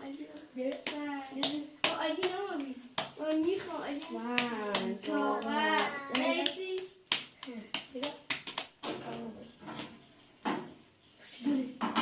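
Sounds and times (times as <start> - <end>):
children chanting sing-song: 0.0 - 7.0
sharp hand claps: 0.6 - 9.2.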